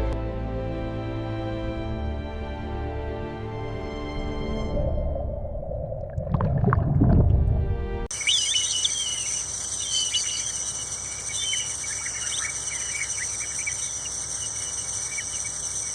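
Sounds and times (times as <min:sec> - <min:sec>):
high-pitched insect drone: 0:08.1 - 0:15.9
small birds chirping: 0:08.1 - 0:15.9.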